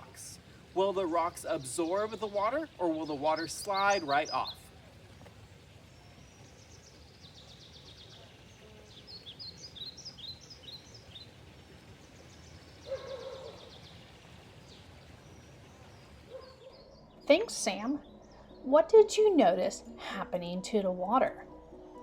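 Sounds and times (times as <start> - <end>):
faint outdoor background hum: 0.0 - 22.0
songbirds singing: 0.0 - 22.0.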